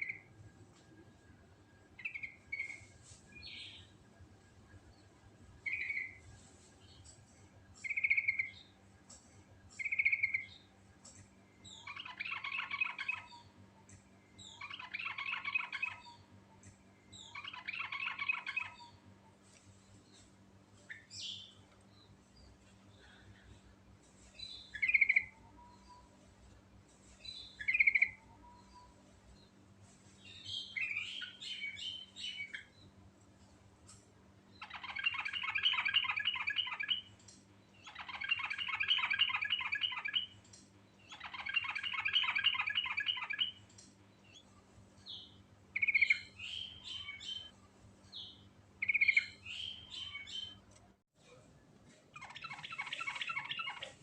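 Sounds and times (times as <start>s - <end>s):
bird whistling song: 2.0s - 3.9s, 7.8s - 8.6s, 9.8s - 10.6s, 34.6s - 37.1s, 37.8s - 40.4s, 41.1s - 43.6s, 48.8s - 50.6s.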